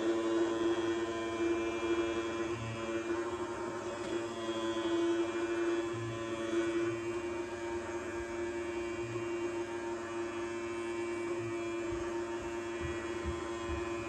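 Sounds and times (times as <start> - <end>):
small electric motor humming: 0.0 - 14.0.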